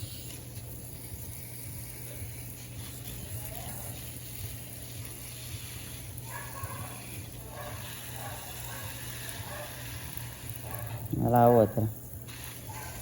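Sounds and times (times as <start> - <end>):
faint voices: 2.1 - 4.5.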